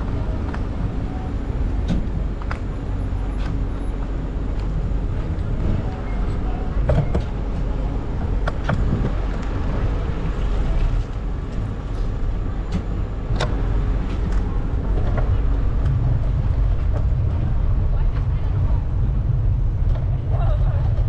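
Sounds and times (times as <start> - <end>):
heavy low rumble: 0.0 - 21.0
street traffic: 0.0 - 21.0.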